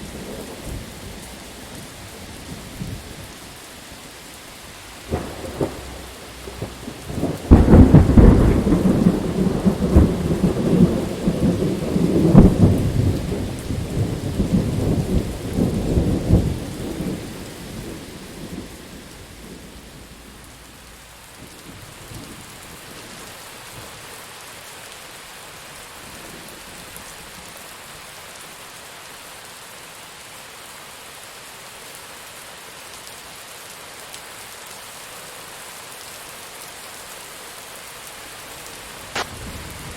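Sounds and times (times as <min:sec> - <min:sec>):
steady rain: 0:00.0 - 0:39.9
thunder rumble: 0:05.0 - 0:22.5, 0:39.1 - 0:39.9
thunder crack: 0:05.1 - 0:17.2, 0:39.1 - 0:39.9.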